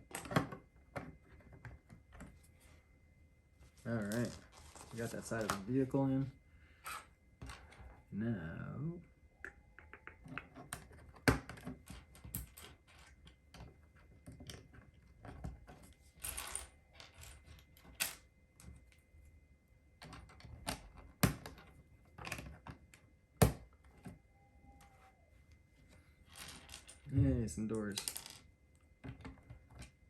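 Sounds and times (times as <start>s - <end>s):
rustle of pieces being sorted: 3.6s - 5.8s.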